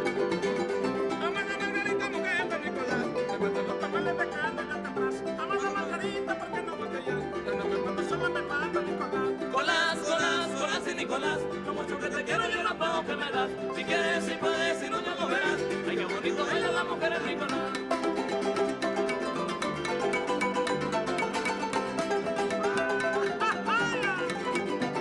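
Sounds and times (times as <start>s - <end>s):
strummed and plucked strings: 0.0s - 25.0s
wavering high melody: 15.3s - 25.0s.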